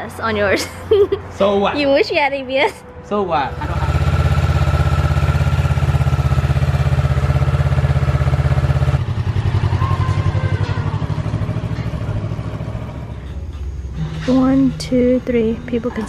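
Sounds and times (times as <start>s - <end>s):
motorcycle engine idling: 3.5s - 13.6s.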